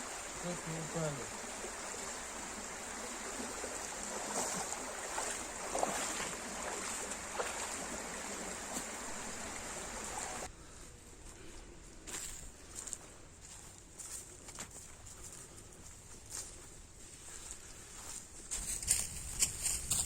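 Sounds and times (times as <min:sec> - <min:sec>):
stream water rushing: 0:00.0 - 0:10.5.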